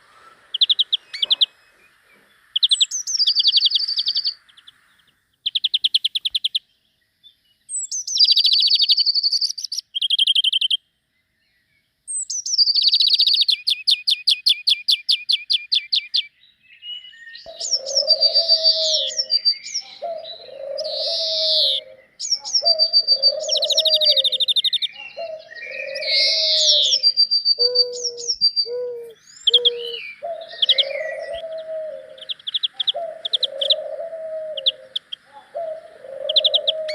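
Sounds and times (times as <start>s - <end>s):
dove cooing: 0.0s - 2.3s, 17.5s - 36.9s
songbirds trilling: 0.0s - 36.9s.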